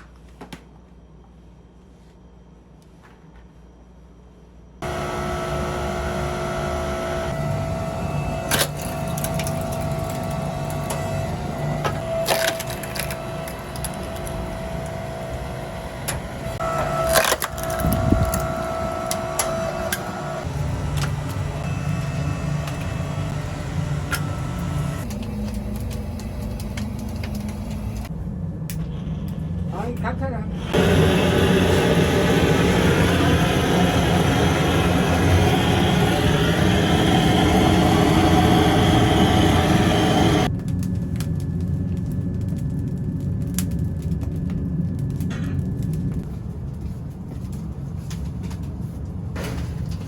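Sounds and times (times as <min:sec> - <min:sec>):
machine motor running: 0:04.8 - 0:28.1, 0:30.6 - 0:40.5.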